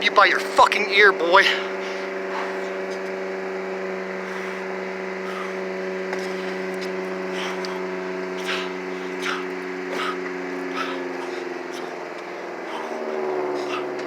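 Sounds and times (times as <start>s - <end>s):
engine-like hum with pitched tones: 0.0s - 14.0s
short hissing bursts: 4.2s - 5.6s.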